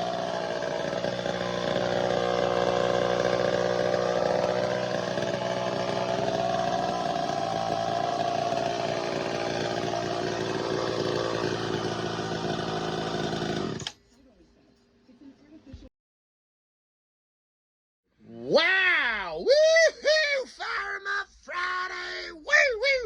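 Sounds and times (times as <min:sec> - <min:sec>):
chainsaw engine running: 0:00.0 - 0:14.0.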